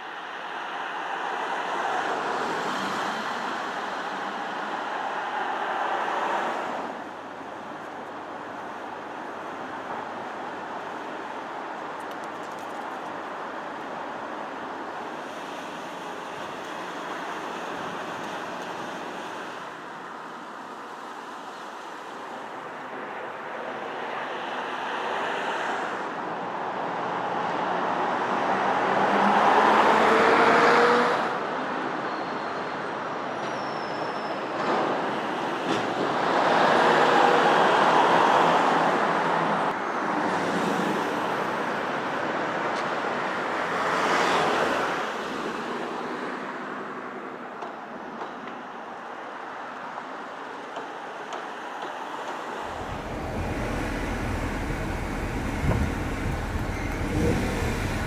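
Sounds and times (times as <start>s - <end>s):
vehicles driving past: 0.0s - 11.4s, 52.4s - 58.0s.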